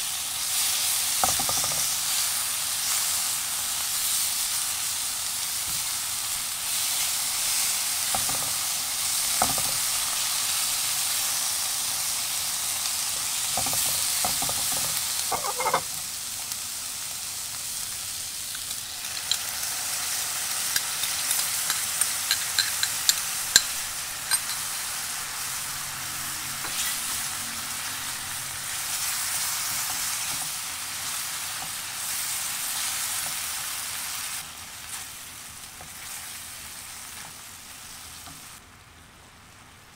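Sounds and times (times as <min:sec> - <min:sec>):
food sizzling in a frying pan: 0:00.0 - 0:39.9
spatula scraping a pan: 0:13.5 - 0:16.0.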